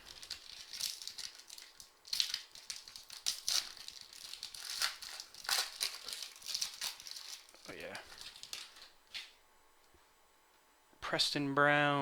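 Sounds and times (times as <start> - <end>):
wrapper crinkling: 0.0 - 9.4.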